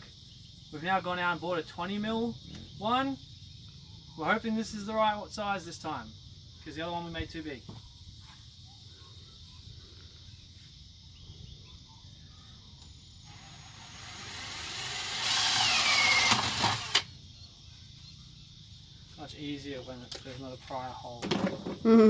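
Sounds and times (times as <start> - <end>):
power drill drilling: 12.8 - 17.1.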